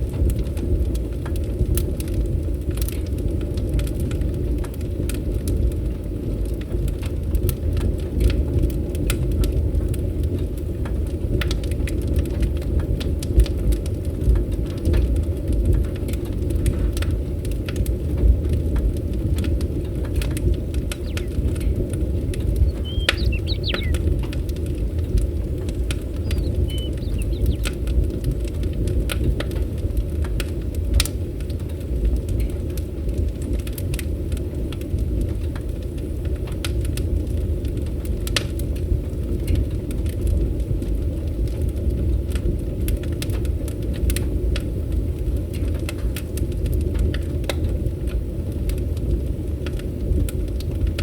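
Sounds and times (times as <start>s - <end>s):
wood fire crackling: 0.0s - 51.0s
steady low rumble: 15.7s - 37.9s
bird chirping: 20.9s - 24.2s, 26.0s - 27.8s.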